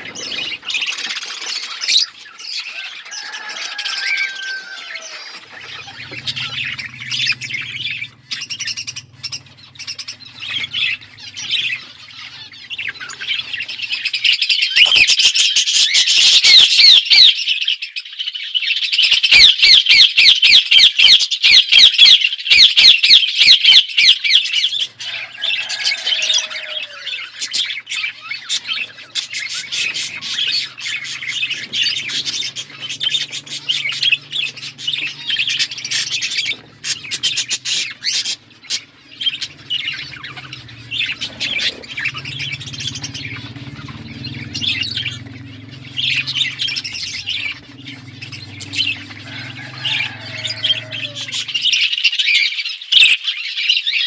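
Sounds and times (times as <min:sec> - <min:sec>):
budgerigars chattering: 0:00.0 - 0:54.0
low steady hum: 0:05.1 - 0:14.3, 0:27.2 - 0:51.9.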